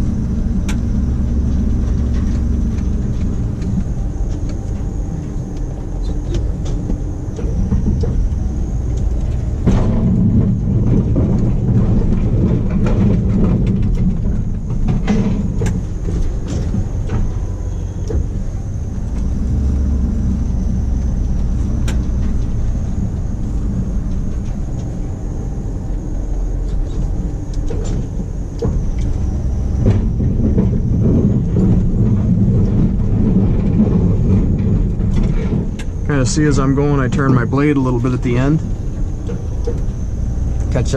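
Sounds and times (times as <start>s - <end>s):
truck engine running: 0.0s - 40.9s.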